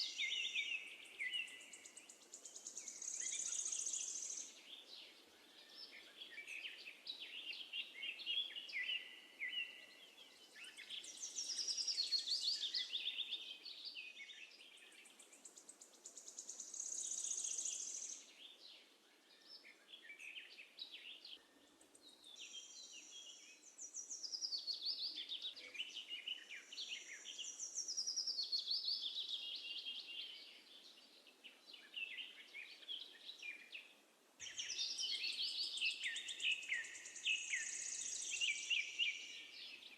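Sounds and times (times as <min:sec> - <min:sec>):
sparrows chirping and singing: 0:00.0 - 0:39.9.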